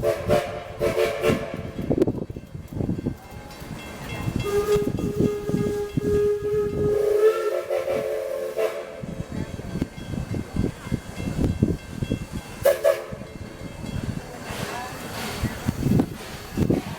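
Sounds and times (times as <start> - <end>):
steam locomotive whistle: 0.0 - 1.8, 4.3 - 9.3, 12.6 - 13.2
steam locomotive exhaust chuffs: 0.0 - 16.9.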